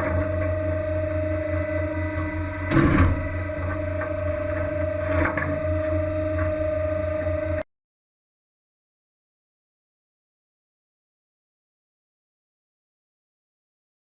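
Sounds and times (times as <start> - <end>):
boat machinery droning: 0.0 - 7.6
loud knock: 2.7 - 3.2.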